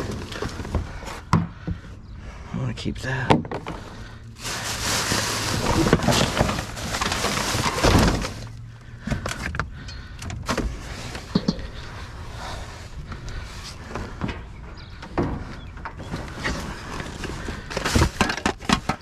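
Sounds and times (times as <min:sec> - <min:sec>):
knocks and clunks of items moved: 0:00.0 - 0:02.0, 0:03.2 - 0:19.0
loud rustling and scraping: 0:03.6 - 0:09.5, 0:10.4 - 0:19.0.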